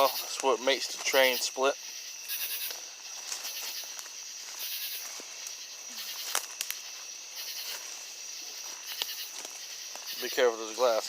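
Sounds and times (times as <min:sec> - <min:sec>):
insects high-pitched drone: 0:00.0 - 0:11.0
footsteps on glass and gravel: 0:02.3 - 0:11.0.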